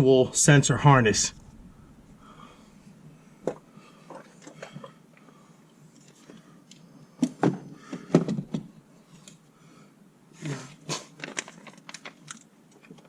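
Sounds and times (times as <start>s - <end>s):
plastic parts clicking and knocking: 11.2s - 13.0s.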